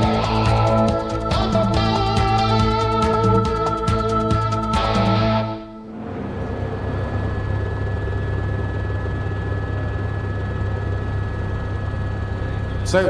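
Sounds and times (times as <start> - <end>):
low steady hum: 5.6 - 13.0.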